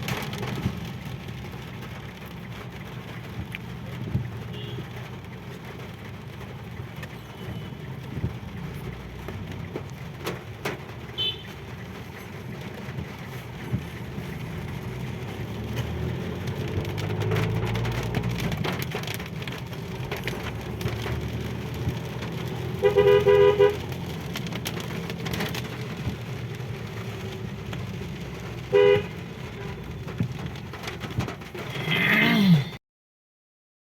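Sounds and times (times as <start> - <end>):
traffic engines and road noise: 0.0 - 32.8
car horn honking: 11.2 - 11.5, 22.8 - 23.8, 28.7 - 29.2.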